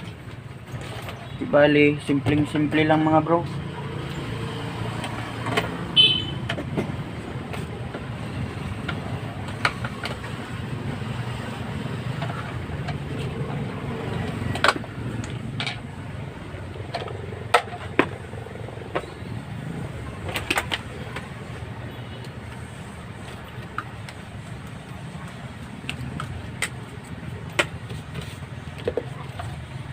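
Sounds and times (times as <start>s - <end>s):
clicks and knocks of fan parts: 4.9s - 10.6s, 12.0s - 19.2s, 20.1s - 21.5s, 23.2s - 29.9s.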